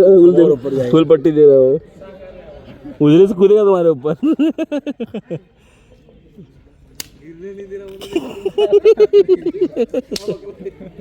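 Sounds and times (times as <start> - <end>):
sharp click: 7.0 - 7.2.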